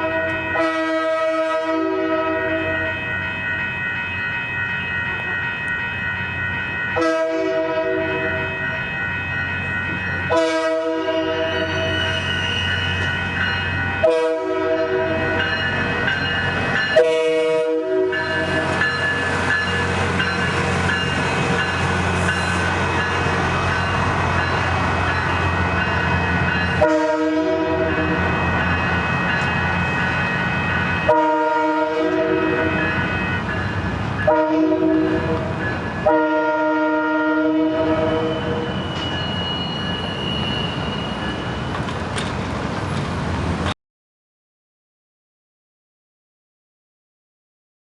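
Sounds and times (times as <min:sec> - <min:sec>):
train horn blasts: 0:00.0 - 0:03.0, 0:07.0 - 0:08.5, 0:10.3 - 0:12.0, 0:14.0 - 0:15.4, 0:17.0 - 0:18.7, 0:26.8 - 0:28.2, 0:31.1 - 0:33.0, 0:34.2 - 0:38.8.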